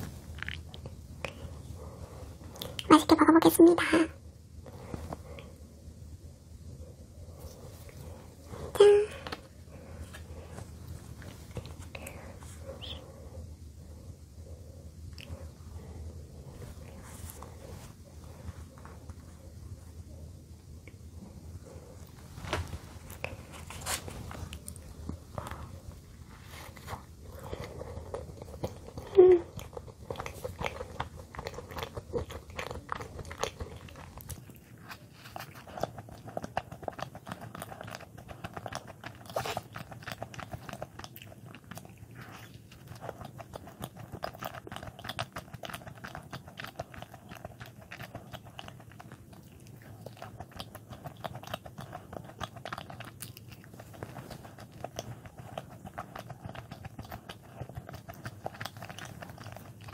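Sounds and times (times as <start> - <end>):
biting and chewing bread: 22.5 - 59.9.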